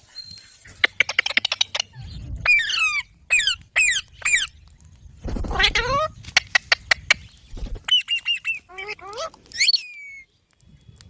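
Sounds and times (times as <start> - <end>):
parakeet squawking: 5.4 - 6.7, 7.9 - 9.8.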